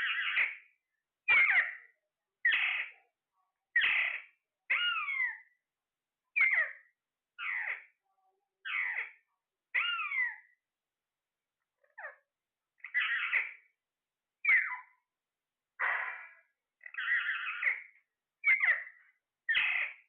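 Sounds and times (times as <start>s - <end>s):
parrot squawking: 0.0s - 0.6s, 1.3s - 3.0s, 3.8s - 5.5s, 6.4s - 6.8s, 7.4s - 7.9s, 8.6s - 10.5s, 12.8s - 13.7s, 14.4s - 14.9s, 15.8s - 20.0s.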